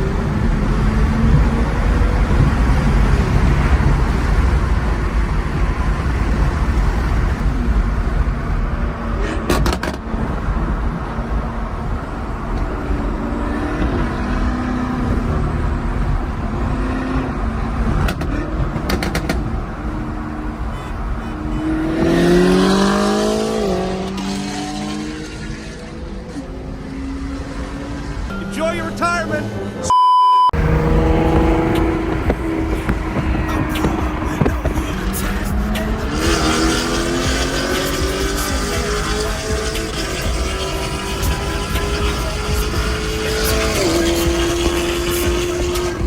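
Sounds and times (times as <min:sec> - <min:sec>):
engine revving: 0:00.0 - 0:07.1, 0:21.3 - 0:28.4, 0:30.6 - 0:46.0
car engines running and passing: 0:00.0 - 0:46.0.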